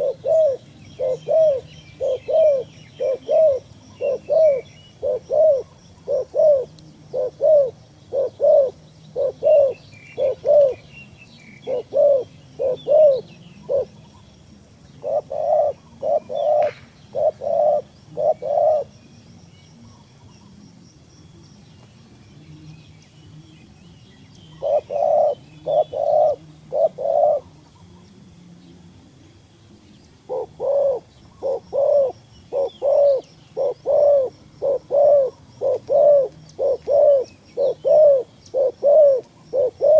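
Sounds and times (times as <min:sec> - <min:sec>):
dove cooing: 0:00.0 - 0:19.2, 0:22.4 - 0:39.9
small birds chirping: 0:00.0 - 0:39.9.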